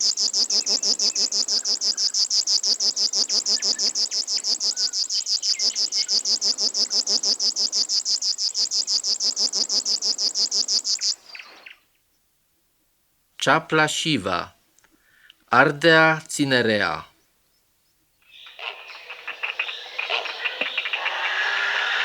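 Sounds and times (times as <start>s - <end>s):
bird buzzing song: 0.0s - 11.8s, 17.4s - 22.0s.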